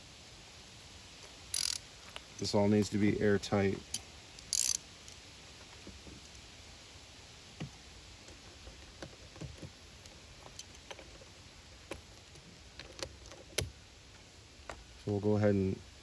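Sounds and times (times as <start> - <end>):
small metal parts clicking: 1.5 - 1.8, 3.8 - 5.2.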